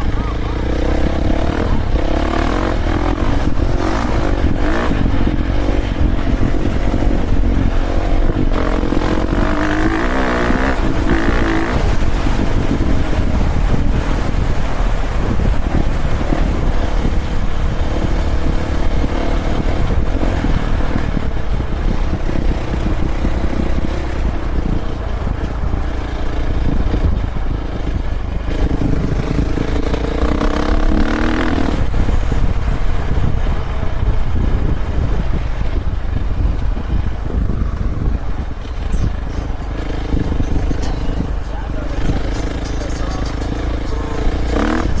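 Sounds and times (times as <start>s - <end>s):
wind rumble on microphone: 0.0s - 45.0s
dirt bike engine revving: 0.3s - 14.4s, 28.4s - 32.1s, 38.6s - 45.0s.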